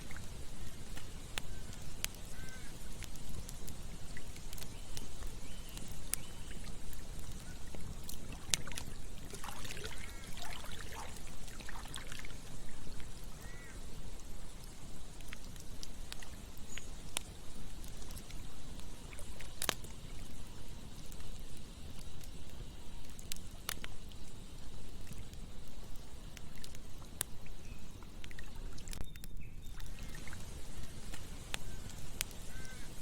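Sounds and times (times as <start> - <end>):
campfire crackling and popping: 0.0 - 33.0
stream flowing: 7.8 - 13.3.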